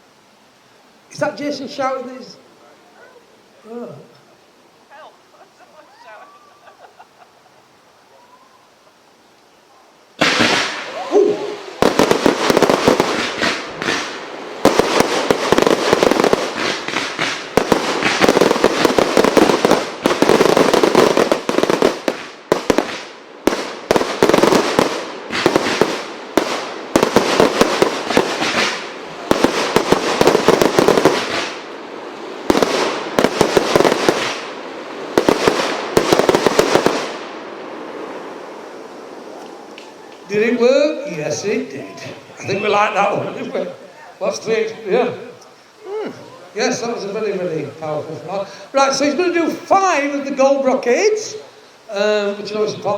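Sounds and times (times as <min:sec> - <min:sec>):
firework barrage bangs: 0:10.2 - 0:39.1.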